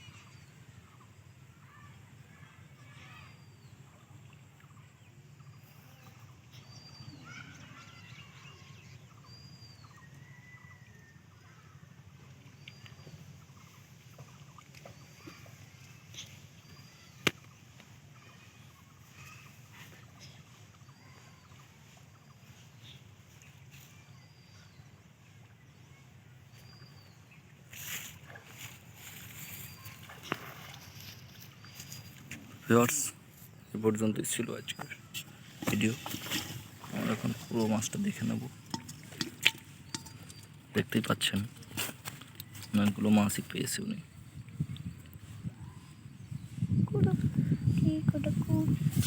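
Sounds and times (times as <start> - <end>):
bird chirping: 29.2 - 48.9.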